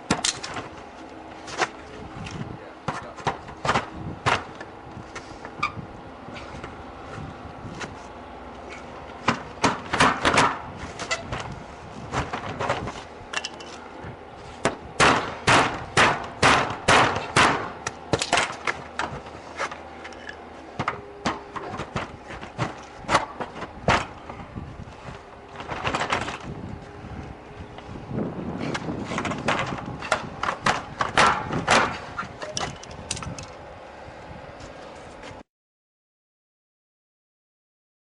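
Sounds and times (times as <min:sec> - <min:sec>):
sharp knocks and blows: 0:02.8 - 0:04.5, 0:09.2 - 0:11.5, 0:14.6 - 0:19.3, 0:28.7 - 0:32.0.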